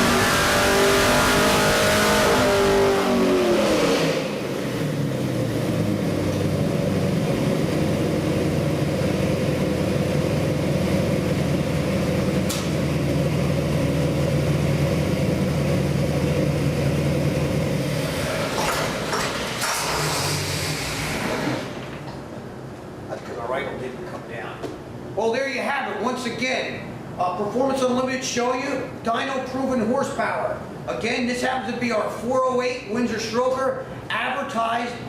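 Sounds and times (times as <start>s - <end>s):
engine running hard under load: 0.0s - 22.0s.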